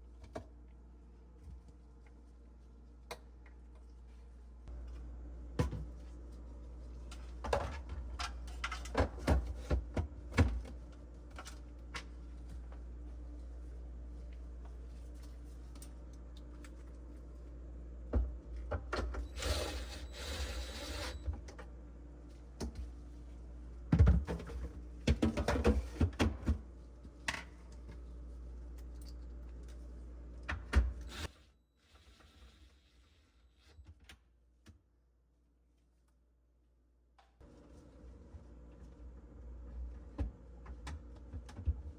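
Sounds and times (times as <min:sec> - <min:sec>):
low steady hum: 0:00.0 - 0:31.3.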